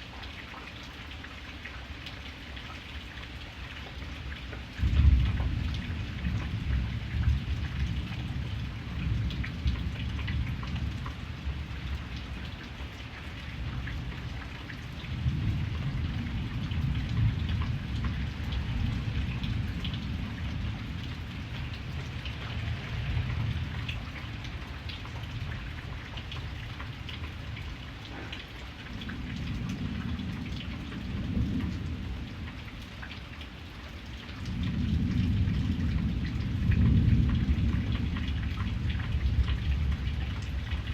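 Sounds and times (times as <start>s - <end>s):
low rolling thunder: 4.8s - 12.5s, 13.5s - 27.0s, 28.3s - 32.5s, 34.4s - 40.9s.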